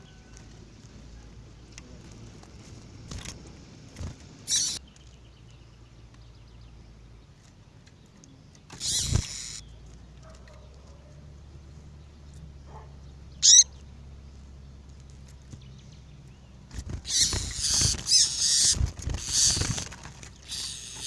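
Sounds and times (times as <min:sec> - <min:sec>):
faint bird chirps: 0:04.5 - 0:09.9, 0:12.0 - 0:14.0
loud scratchy noises: 0:08.7 - 0:09.6, 0:16.7 - 0:21.0.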